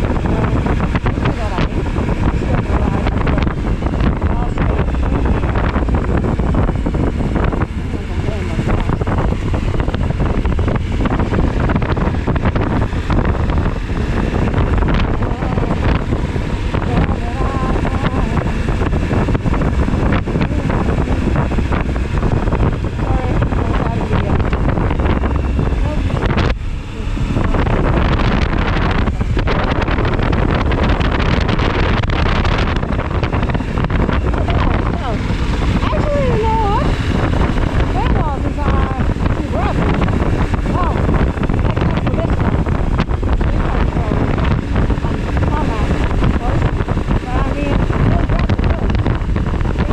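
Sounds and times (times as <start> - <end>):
motorcycle engine running: 0.0 - 49.9
wind buffeting microphone: 0.0 - 49.9.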